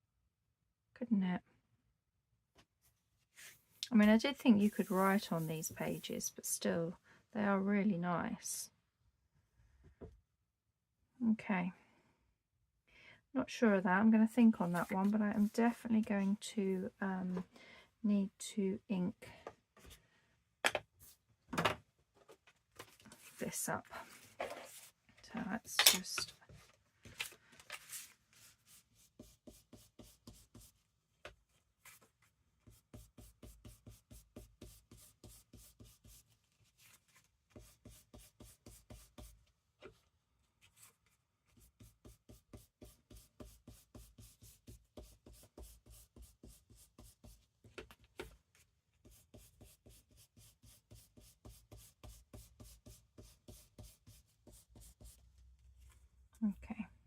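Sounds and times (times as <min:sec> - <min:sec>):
ink rubbing on paper edges: 0:04.4 - 0:06.1.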